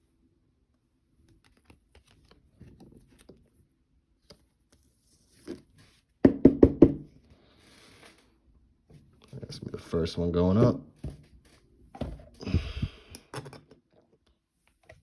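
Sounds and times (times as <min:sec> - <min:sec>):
sharp knock on table: 0:06.2 - 0:07.0.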